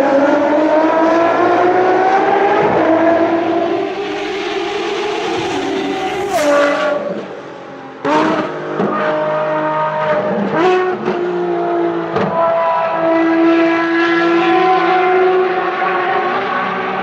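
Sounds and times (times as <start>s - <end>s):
racing car engine shifting gears: 0.0s - 9.6s.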